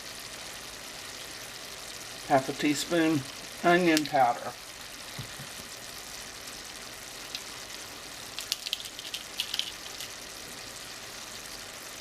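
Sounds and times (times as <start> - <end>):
vegetables sizzling in butter: 0.0 - 12.0
sharp crackles and pops: 3.2 - 10.4.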